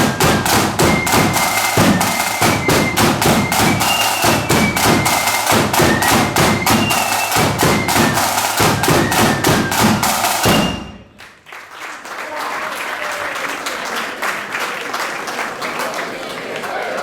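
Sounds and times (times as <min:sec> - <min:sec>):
flute melody: 0:00.0 - 0:11.2
heavy drumming: 0:00.0 - 0:11.2.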